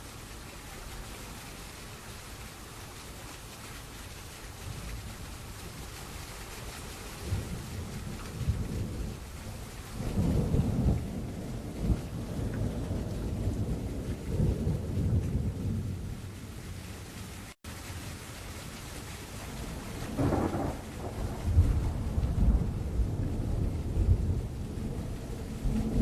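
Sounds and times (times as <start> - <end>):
rain hissing: 0.0 - 26.0
thunder rumbling: 7.1 - 17.4, 19.5 - 26.0.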